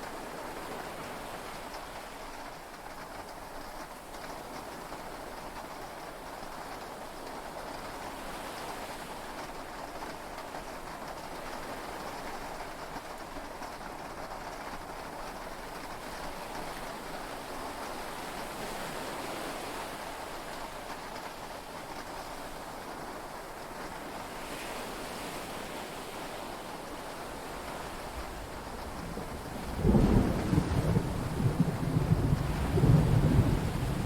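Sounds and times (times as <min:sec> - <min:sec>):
heavy rain: 0:14.6 - 0:34.0
sea noise: 0:24.1 - 0:34.0
low rumble of thunder: 0:27.5 - 0:34.0.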